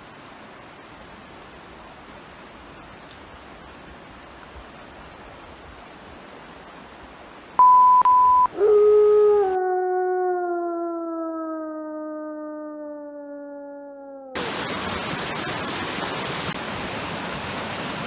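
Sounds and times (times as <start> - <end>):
steady hiss: 0.0 - 7.6, 14.4 - 18.0
electronic beep: 7.6 - 8.5.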